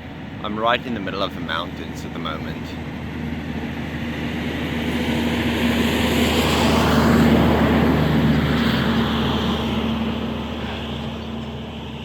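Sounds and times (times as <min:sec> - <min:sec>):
vehicle passing close by: 0:01.5 - 0:12.0.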